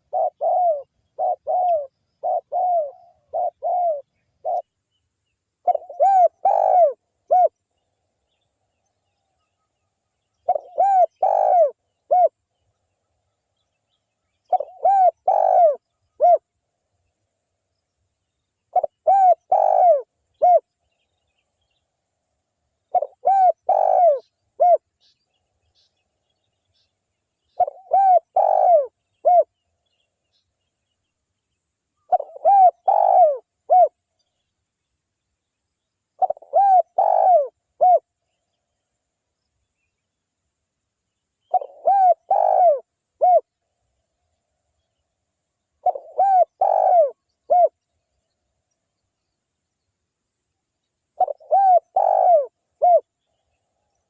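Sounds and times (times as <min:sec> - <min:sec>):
dove cooing: 0:00.0 - 0:04.7, 0:05.6 - 0:07.6, 0:10.4 - 0:12.4, 0:14.5 - 0:16.4, 0:18.7 - 0:20.6, 0:22.9 - 0:24.8, 0:27.6 - 0:29.5, 0:32.1 - 0:34.0, 0:36.2 - 0:38.1, 0:41.5 - 0:43.5, 0:45.8 - 0:47.8, 0:51.2 - 0:53.1.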